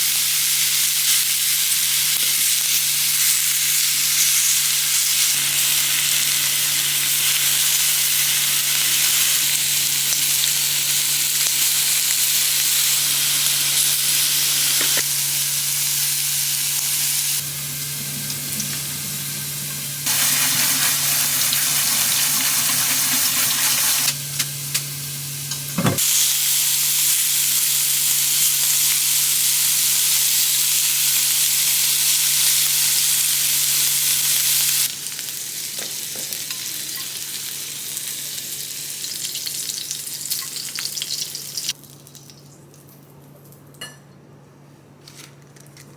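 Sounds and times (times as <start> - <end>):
food sizzling in frying pan: 0.0 - 41.8
low hum: 17.4 - 26.0.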